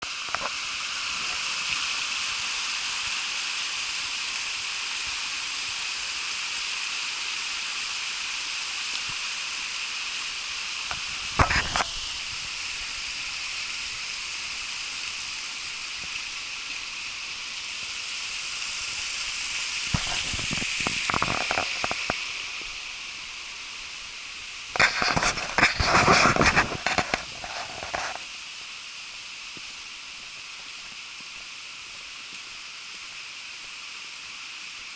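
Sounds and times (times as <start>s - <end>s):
waterfall rushing: 0.0s - 34.9s
clatter and knocks: 20.0s - 22.2s.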